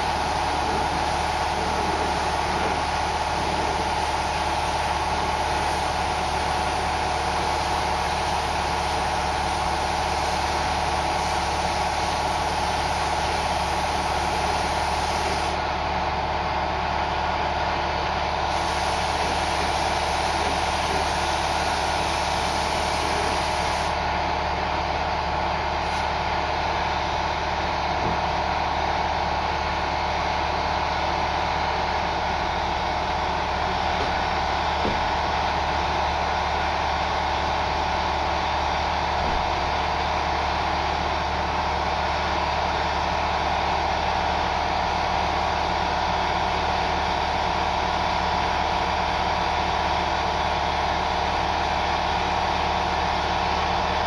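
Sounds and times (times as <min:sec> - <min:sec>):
machine hiss and hum: 0:00.0 - 0:15.6, 0:18.3 - 0:26.9.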